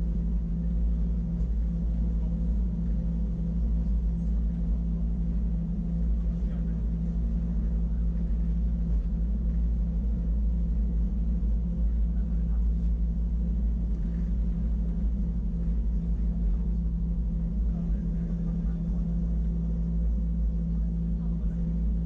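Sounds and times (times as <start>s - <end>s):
train rumbling inside carriage: 11.9s - 19.9s.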